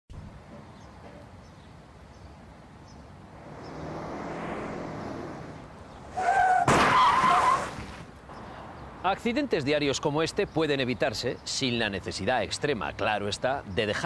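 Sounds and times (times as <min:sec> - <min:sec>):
street noise: 0:00.1 - 0:14.0
vehicle approaching: 0:02.8 - 0:06.5.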